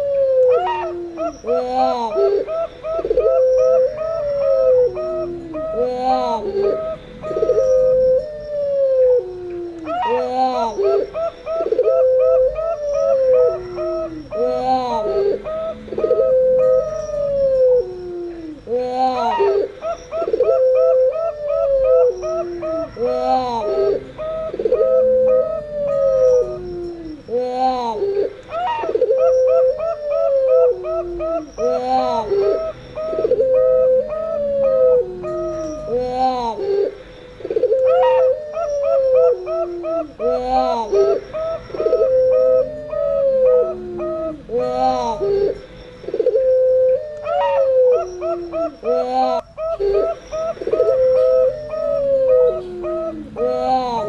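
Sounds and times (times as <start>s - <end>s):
dove long drawn-out coo: 0.0s - 54.0s
doves quick cooing and trills: 0.0s - 54.0s.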